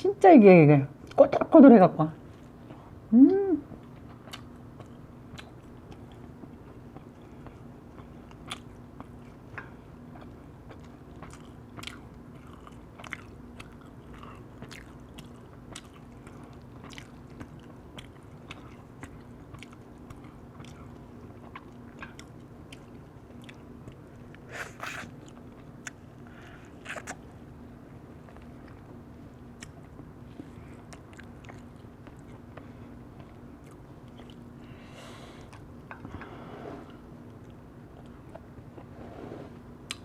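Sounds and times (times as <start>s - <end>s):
close chewing and biting: 3.8s - 27.4s, 28.2s - 34.5s.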